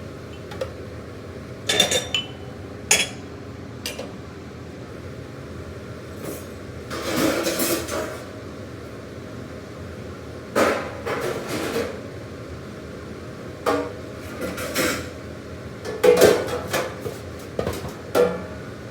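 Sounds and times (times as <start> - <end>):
dishes and metal pans clattering: 1.7 - 3.2, 6.3 - 8.2, 15.8 - 18.6.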